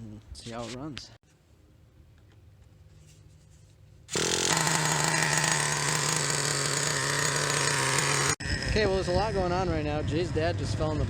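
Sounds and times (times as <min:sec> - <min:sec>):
rc truck engine buzzing: 0:04.1 - 0:08.8.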